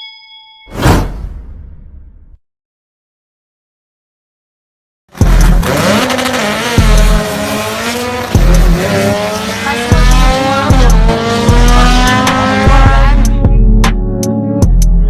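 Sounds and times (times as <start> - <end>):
car engine accelerating hard: 5.1 - 13.4
music with thumping beat: 5.2 - 7.4, 8.0 - 15.0.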